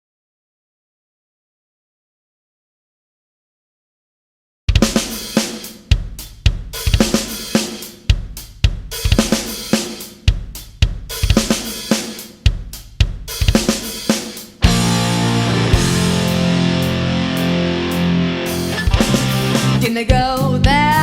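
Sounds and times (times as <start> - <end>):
rock drum kit playing: 4.7 - 21.0.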